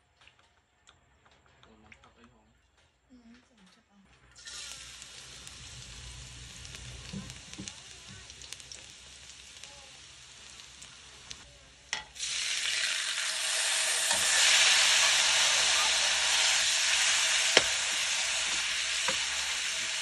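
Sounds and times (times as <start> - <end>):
garlic sizzling in hot oil: 4.4 - 20.0.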